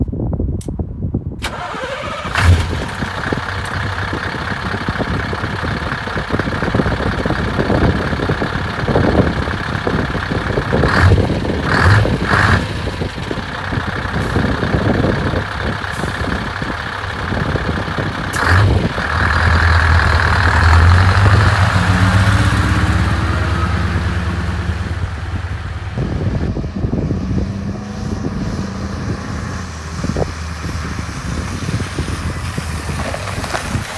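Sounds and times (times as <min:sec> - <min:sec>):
diesel truck engine running: 0:01.4 - 0:33.9.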